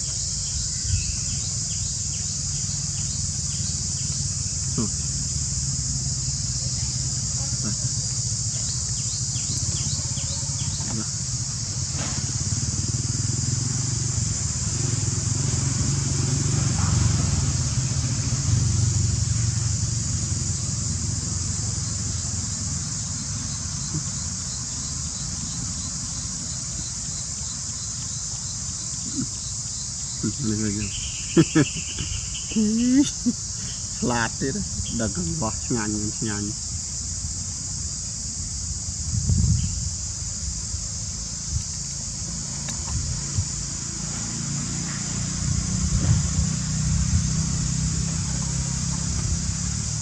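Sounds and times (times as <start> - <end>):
insects chirring: 0.0 - 50.0
voices: 4.7 - 5.1, 6.4 - 11.4, 16.4 - 17.8, 28.9 - 29.4, 30.2 - 36.6.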